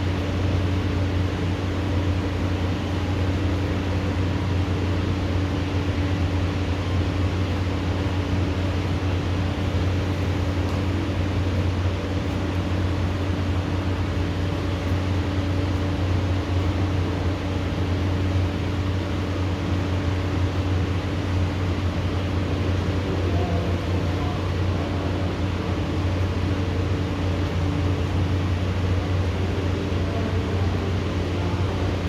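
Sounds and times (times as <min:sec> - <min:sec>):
low machine hum: 0:00.0 - 0:32.0.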